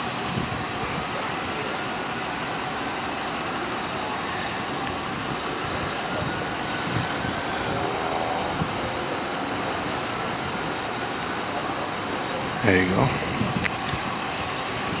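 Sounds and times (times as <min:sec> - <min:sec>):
outdoor traffic noise: 0:00.0 - 0:15.0
vehicle passing faintly: 0:03.9 - 0:11.8.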